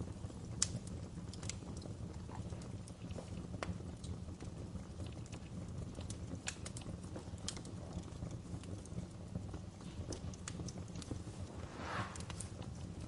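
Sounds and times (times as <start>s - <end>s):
wood fire crackling: 0.0s - 13.0s
low rumble: 11.2s - 13.0s.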